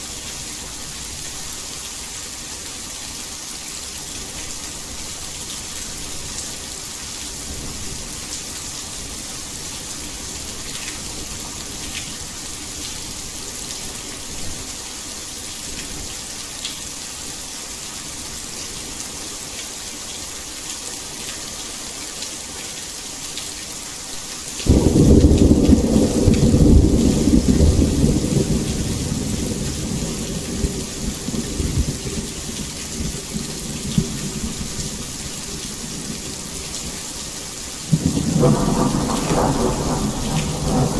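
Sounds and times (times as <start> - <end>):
heavy rain: 0.0 - 40.9
thunderclap: 24.7 - 32.2, 37.9 - 40.9.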